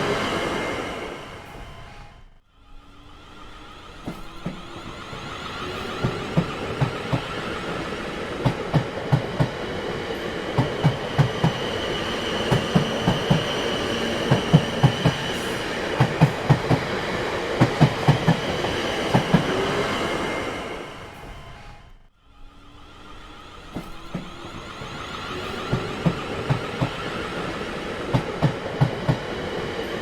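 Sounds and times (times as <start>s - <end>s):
train wheels clacking over rail joints: 4.0s - 19.6s.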